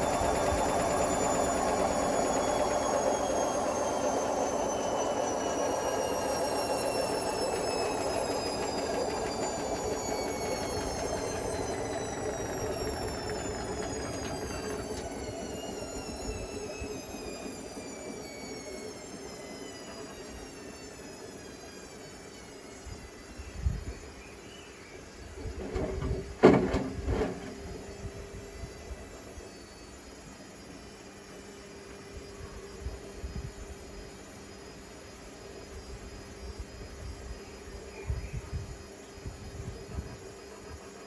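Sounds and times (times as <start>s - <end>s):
washing machine spin slowing: 0.0s - 41.0s.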